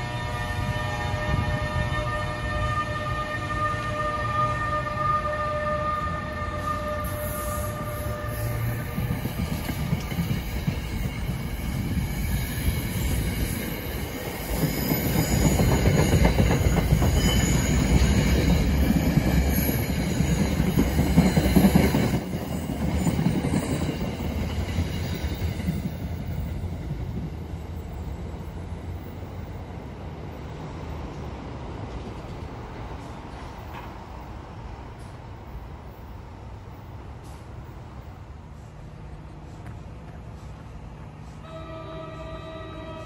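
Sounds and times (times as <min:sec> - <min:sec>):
high wheel squeal: 0:06.9 - 0:25.8
train wheels clattering on rails: 0:07.4 - 0:27.9, 0:31.0 - 0:34.3.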